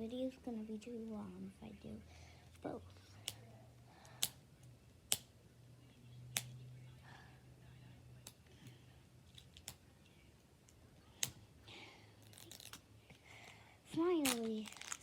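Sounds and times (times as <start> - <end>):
plastic wrapping clicks and snaps: 12.2 - 12.8, 14.2 - 15.0.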